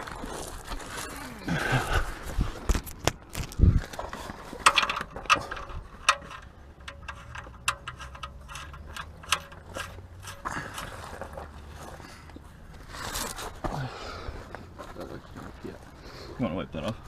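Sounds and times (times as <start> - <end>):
tools clicking and knocking: 4.6 - 11.0.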